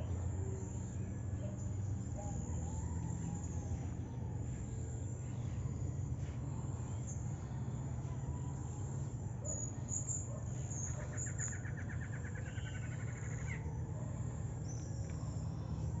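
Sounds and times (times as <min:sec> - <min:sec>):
birds chirping: 0:00.0 - 0:16.0
bird trill: 0:08.2 - 0:16.0.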